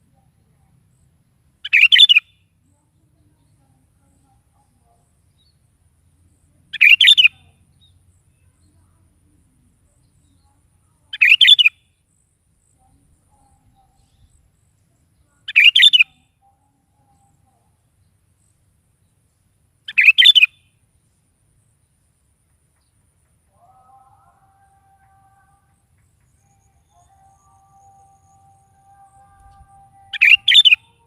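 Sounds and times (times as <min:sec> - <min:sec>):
bulbul singing short phrases: 0:06.7 - 0:07.6, 0:10.0 - 0:11.7, 0:15.1 - 0:17.8, 0:23.5 - 0:31.0.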